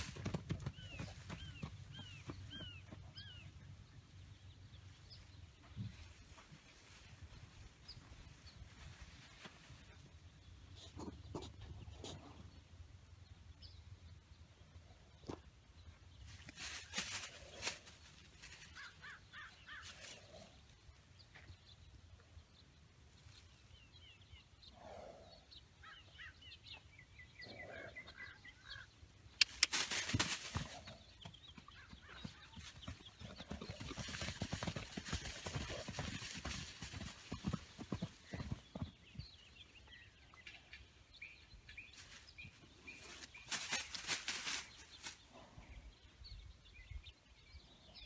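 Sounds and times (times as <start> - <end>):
birds chirping and calling: 0.0 - 5.8, 16.8 - 21.6, 23.7 - 48.0
rustling: 29.4 - 30.8, 43.0 - 45.2.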